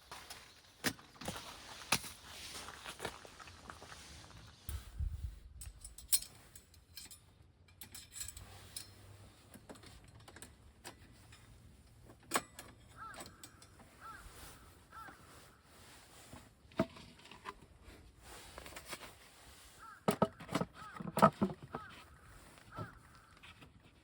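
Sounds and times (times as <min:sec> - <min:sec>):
clicks and knocks of handling: 0:05.6 - 0:14.2, 0:19.8 - 0:24.0.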